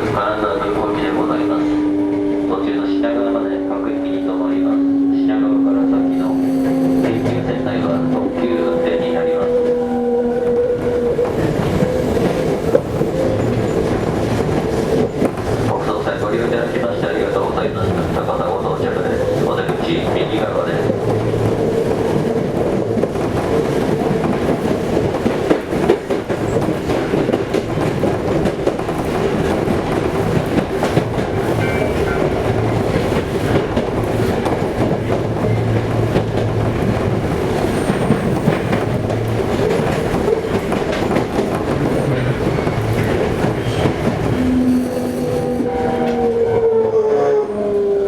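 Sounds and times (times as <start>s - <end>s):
train rumble: 0.0s - 48.0s
wheels clattering over rails: 10.5s - 44.7s
whine shifting in pitch: 44.3s - 48.0s.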